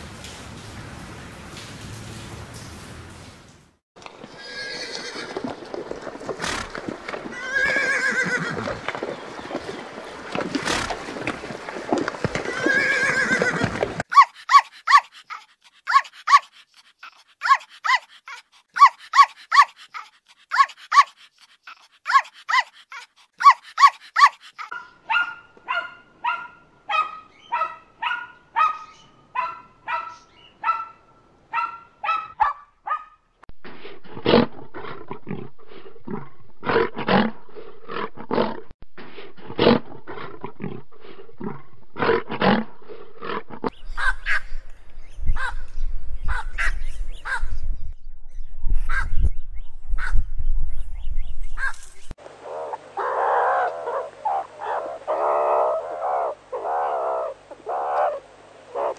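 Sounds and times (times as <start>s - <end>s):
small dog yapping: 14.1s - 31.0s
dog barking: 17.4s - 18.1s, 22.1s - 33.3s, 44.0s - 44.5s, 46.3s - 47.5s, 48.9s - 49.1s
lioness growling: 33.8s - 43.7s.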